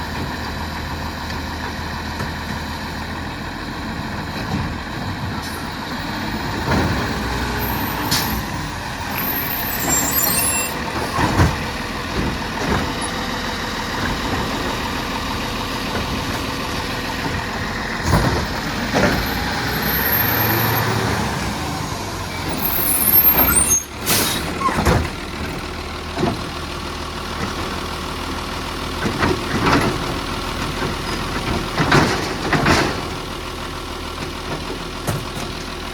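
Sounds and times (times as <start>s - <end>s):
refuse truck running: 0.0s - 35.9s
short high squeals: 9.1s - 11.2s, 22.6s - 24.8s.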